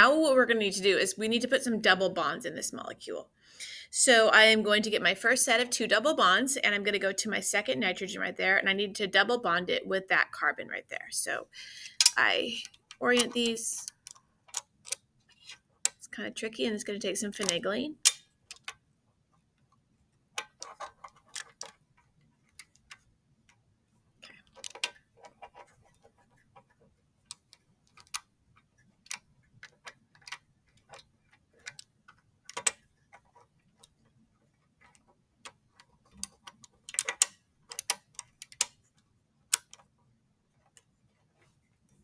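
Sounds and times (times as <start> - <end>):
plastic pieces clicking together: 11.8 - 16.0, 17.4 - 18.8, 20.4 - 21.8, 24.5 - 25.0, 32.5 - 33.9, 36.0 - 38.8.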